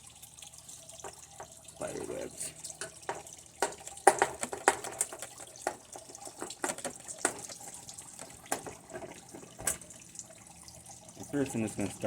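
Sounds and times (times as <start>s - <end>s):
hard plastic parts clicking: 2.8s - 5.8s, 6.4s - 7.6s.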